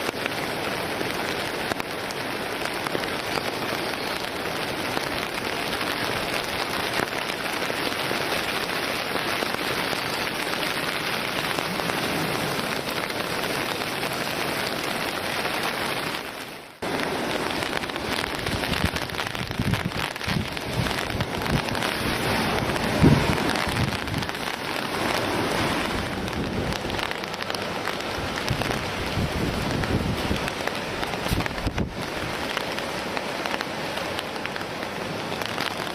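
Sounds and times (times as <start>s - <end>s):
heavy rain hiss: 0.0s - 35.9s
wind buffeting microphone: 17.8s - 32.8s.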